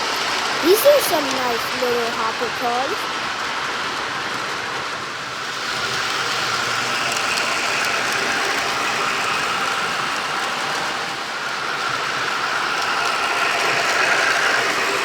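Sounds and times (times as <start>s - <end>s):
model train wheels rattling: 3.6s - 15.0s
thin motor whine: 5.5s - 15.0s.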